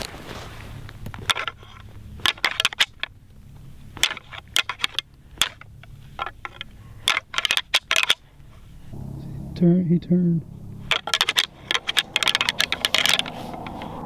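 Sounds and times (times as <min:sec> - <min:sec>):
antlers clacking together: 0:01.1 - 0:03.2, 0:03.9 - 0:08.3.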